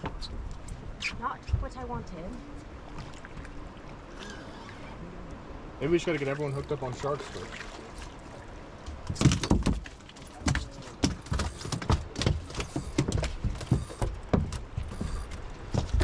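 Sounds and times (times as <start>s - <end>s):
knocks and thumps on a boat: 7.5s - 16.0s.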